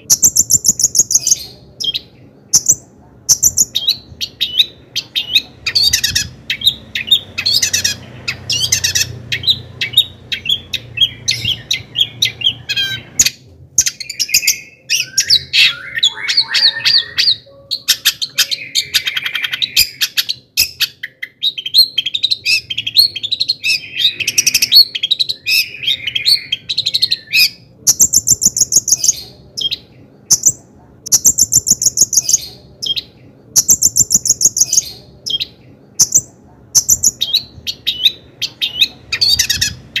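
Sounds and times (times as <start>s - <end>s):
bird singing harsh chatters and trills: 0.0s - 40.0s.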